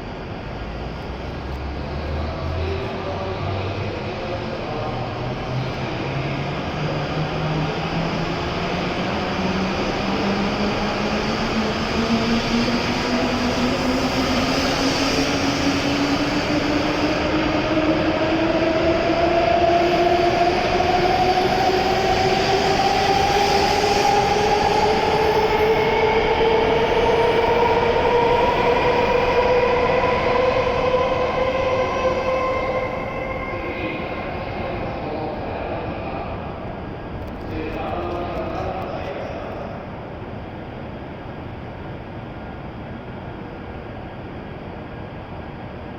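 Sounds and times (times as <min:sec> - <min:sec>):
rumble of train wheels: 0:00.0 - 0:45.9
train traction motor whine: 0:05.0 - 0:35.3.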